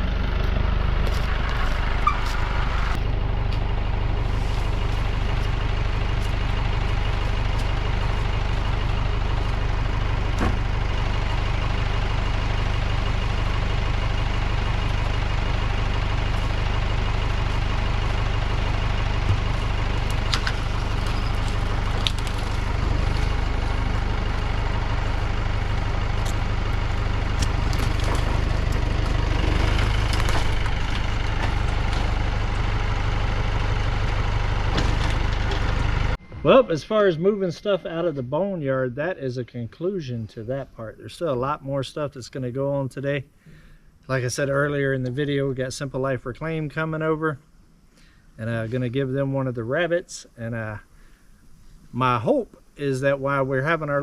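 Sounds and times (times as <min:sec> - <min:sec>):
tractor engine running: 0:00.0 - 0:54.0
sharp knocks and clatters: 0:27.4 - 0:31.6.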